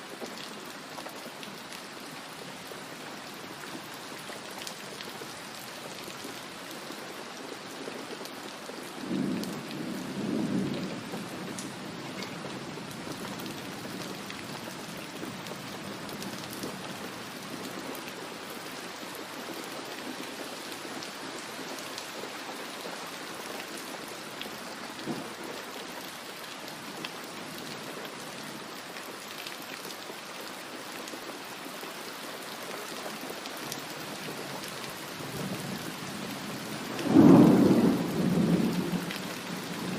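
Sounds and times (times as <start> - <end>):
steady rain: 0.0 - 39.9
thunder rumble: 37.0 - 39.9.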